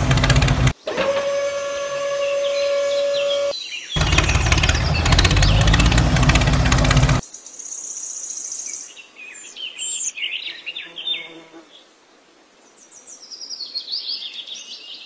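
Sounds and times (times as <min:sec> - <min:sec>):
engine rumble with rapid clatter: 0:00.0 - 0:00.8, 0:04.0 - 0:07.2
birds chirping: 0:00.0 - 0:00.9, 0:02.2 - 0:11.3.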